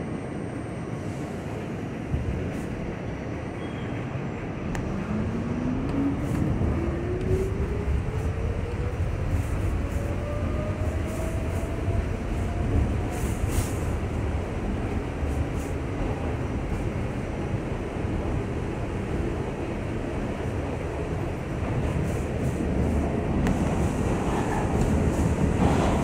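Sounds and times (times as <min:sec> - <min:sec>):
rail clacks: 0:21.6 - 0:26.0.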